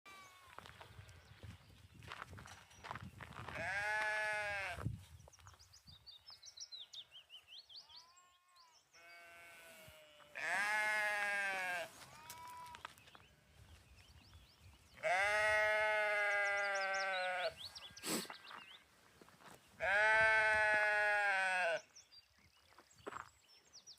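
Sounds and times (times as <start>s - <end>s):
lambs bleating: 3.5s - 4.8s, 8.0s - 12.8s, 15.0s - 18.2s, 19.8s - 21.8s.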